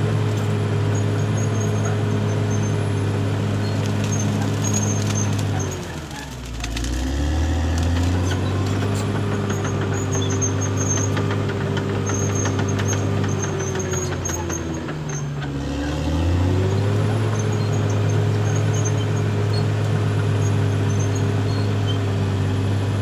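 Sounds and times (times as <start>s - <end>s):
bulldozer diesel engine under load: 0.0s - 23.0s
metal clanks and clicks: 7.8s - 15.6s.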